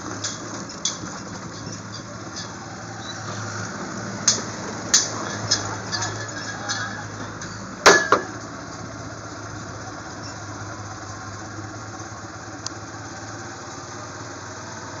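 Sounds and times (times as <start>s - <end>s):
sharp loud clunks: 7.8s - 8.4s.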